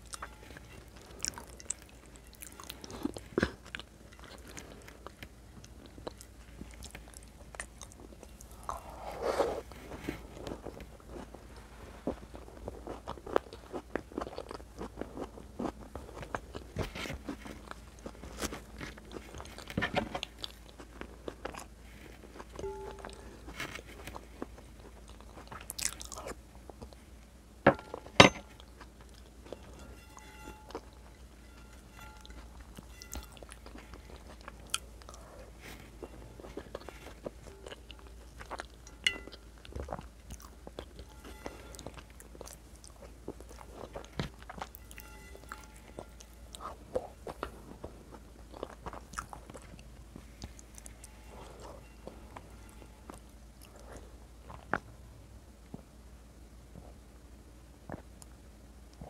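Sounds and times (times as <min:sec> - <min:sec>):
person chewing with wet smacks: 0:00.0 - 0:08.8, 0:10.2 - 0:27.0, 0:32.2 - 0:41.1, 0:41.7 - 0:45.0, 0:46.1 - 0:51.0.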